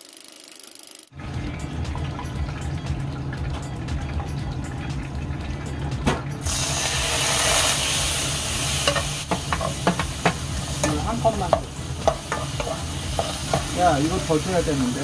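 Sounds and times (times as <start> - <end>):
sauce sizzling in hot oil: 6.4 - 15.0.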